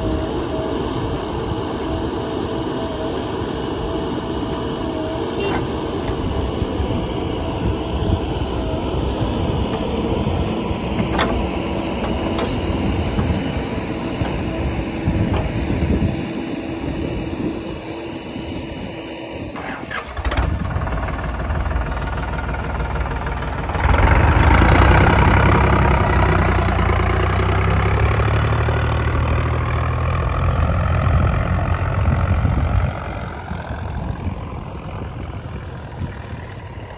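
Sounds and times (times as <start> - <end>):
heavy diesel engine running: 0.0 - 36.9
clicks: 9.2 - 15.9.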